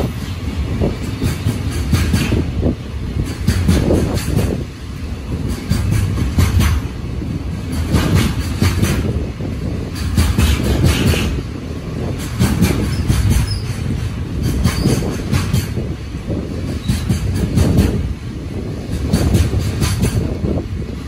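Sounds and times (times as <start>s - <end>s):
wheels clacking over rail joints: 0.0s - 21.0s
wheels rumbling on rail: 0.0s - 21.0s.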